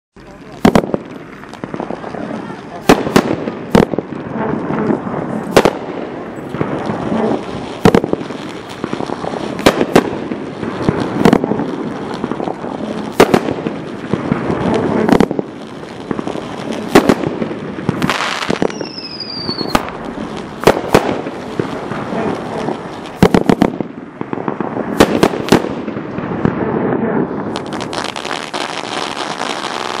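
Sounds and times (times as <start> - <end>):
fireworks bangs: 0.2 - 30.0
fireworks rumbling and crackling: 0.2 - 30.0
falling whistle tone: 18.7 - 19.7.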